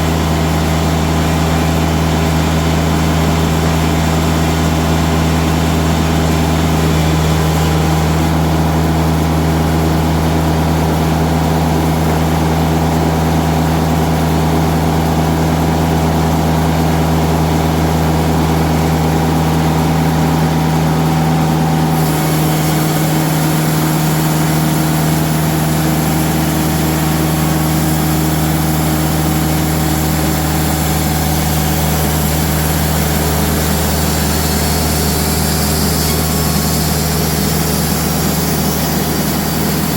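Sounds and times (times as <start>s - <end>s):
diesel engine running: 0.0s - 39.9s
high hiss: 21.9s - 39.9s.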